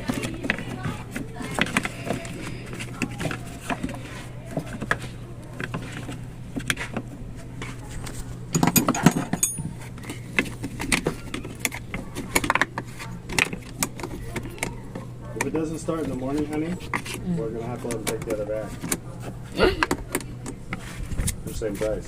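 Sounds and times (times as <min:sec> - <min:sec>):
steady low hum: 0:00.0 - 0:22.0
metal tools clinking and knocking: 0:08.5 - 0:11.2.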